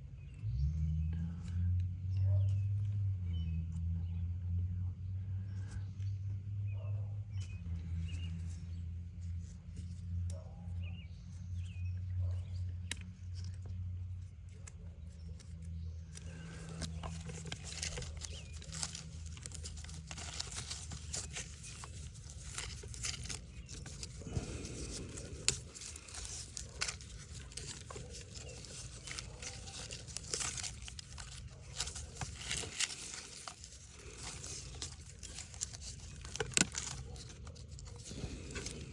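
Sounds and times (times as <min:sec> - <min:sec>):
materials crinkling: 0:14.4 - 0:38.9
materials tearing: 0:16.1 - 0:38.9.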